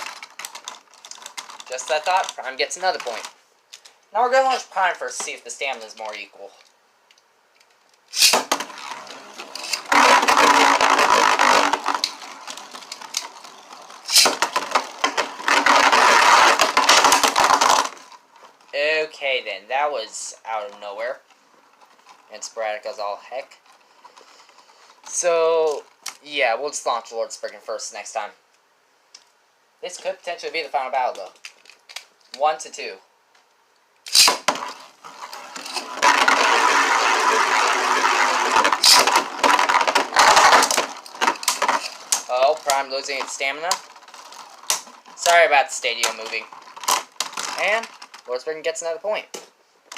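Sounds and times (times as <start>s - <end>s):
launcher snap: 8.1s - 8.6s, 34.1s - 34.5s
spinning tops clattering: 8.1s - 18.0s, 34.1s - 47.9s.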